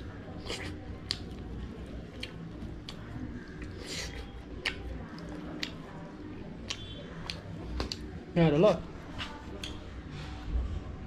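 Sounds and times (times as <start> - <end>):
person chewing food: 0.4 - 8.1.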